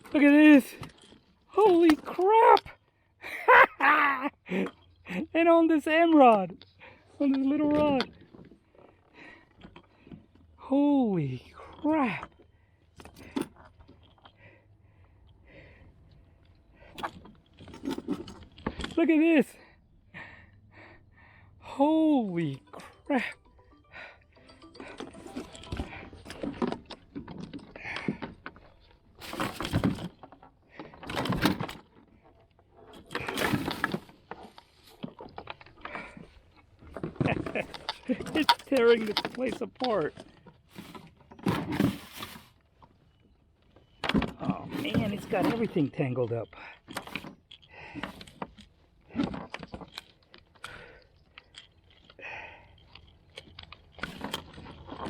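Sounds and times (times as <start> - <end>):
gear clattering and rattling: 0.0 - 2.8, 4.5 - 10.6, 11.2 - 14.6, 15.2 - 20.5, 24.7 - 55.0
fishing tackle clicks and knocks: 16.5 - 19.0, 24.8 - 42.5, 43.6 - 55.0.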